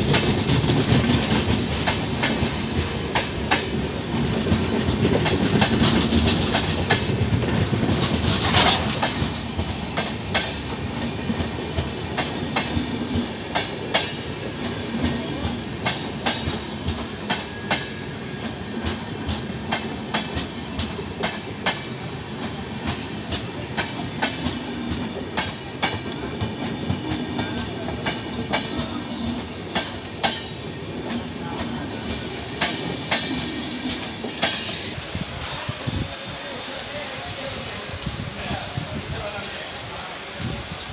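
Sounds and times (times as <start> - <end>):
train wheels clicking over rail joints: 0.0 - 35.7
train rumble: 0.0 - 40.9.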